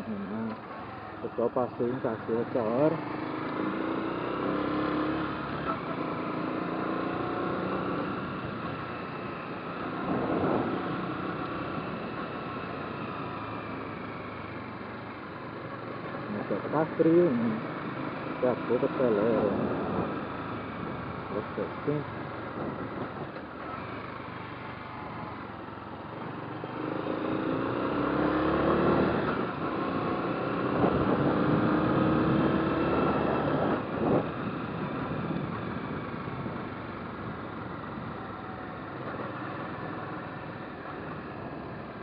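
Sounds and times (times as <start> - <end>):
motorcycle engine accelerating: 0.0 - 42.0
wind and road noise: 0.0 - 42.0.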